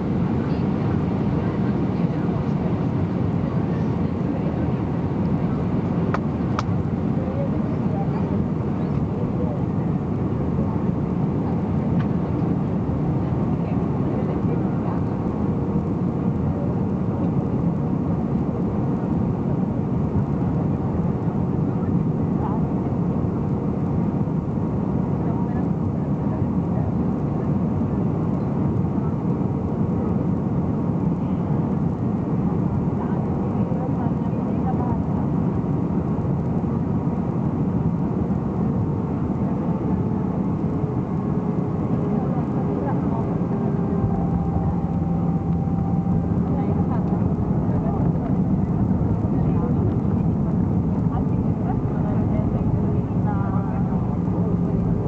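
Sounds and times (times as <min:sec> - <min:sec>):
engine and airflow rush: 0:00.0 - 0:55.0
faint steady hum: 0:26.7 - 0:55.0.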